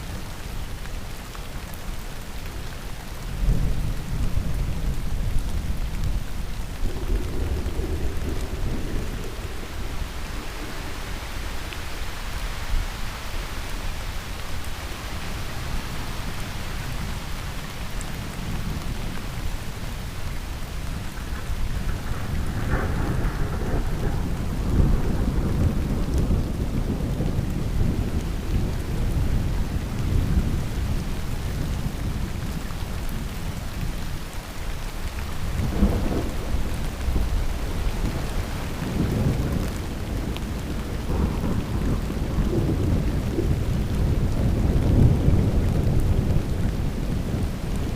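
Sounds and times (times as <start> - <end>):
heavy rain falling: 0.0 - 47.9
rolling thunder: 3.4 - 12.7, 20.9 - 32.6, 35.4 - 47.9.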